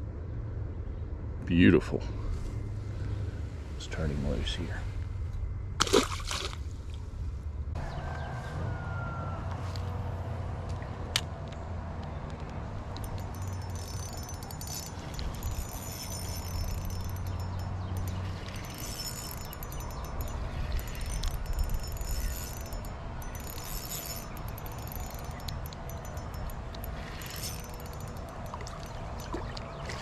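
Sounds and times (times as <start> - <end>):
fishing reel whirring: 12.8 - 30.0.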